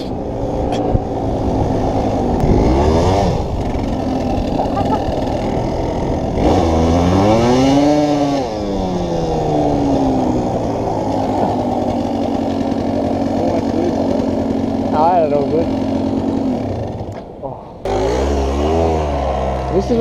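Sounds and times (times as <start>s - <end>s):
pit bike engine revving: 0.0s - 20.0s
pit bike engine idling: 3.4s - 6.4s, 8.5s - 20.0s.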